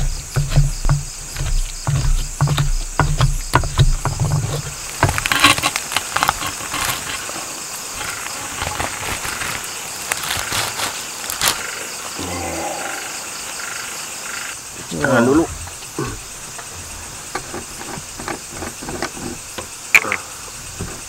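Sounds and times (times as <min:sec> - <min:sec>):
pestle grinding in mortar: 0:00.0 - 0:07.2
insects chirping: 0:00.0 - 0:21.0.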